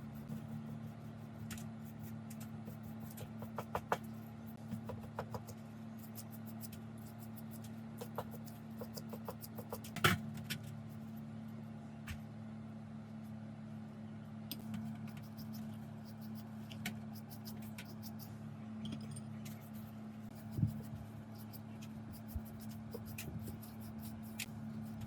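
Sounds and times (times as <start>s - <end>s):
low hum: 10.2s - 25.0s.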